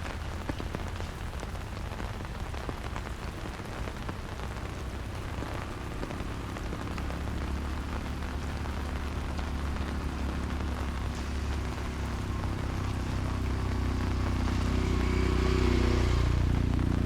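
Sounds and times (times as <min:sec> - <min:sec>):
steady rain falling: 0:00.0 - 0:17.0
motor droning: 0:05.3 - 0:17.0.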